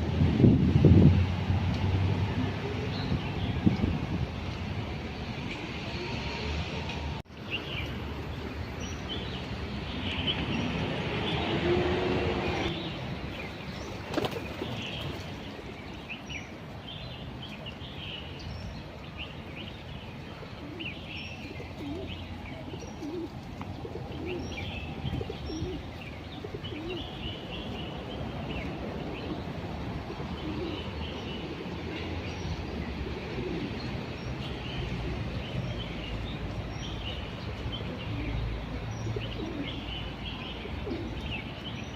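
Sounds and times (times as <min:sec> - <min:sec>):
birds chirping: 0:07.3 - 0:41.9
doves cooing: 0:20.4 - 0:27.3, 0:30.1 - 0:32.2, 0:33.0 - 0:34.0, 0:37.8 - 0:40.0, 0:40.6 - 0:41.4.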